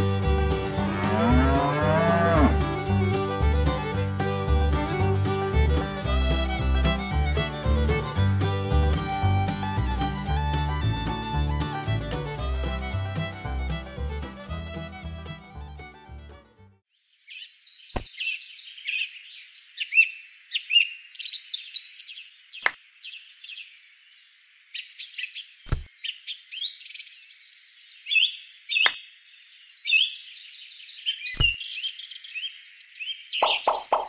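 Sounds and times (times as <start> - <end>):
songbirds chirping and whistling: 16.9 - 34.0.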